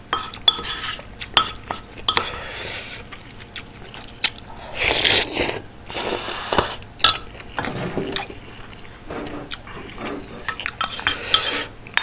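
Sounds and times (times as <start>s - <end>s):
close chewing: 2.8s - 7.6s.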